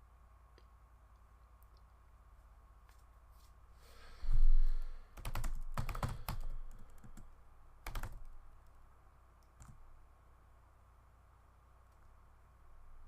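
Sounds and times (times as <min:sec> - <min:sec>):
typing on computer keyboard: 0:05.2 - 0:08.8, 0:09.6 - 0:09.8.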